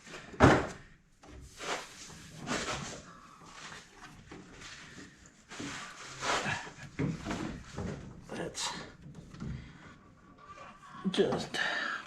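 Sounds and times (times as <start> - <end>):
scraping and rustling: 1.2 - 8.2.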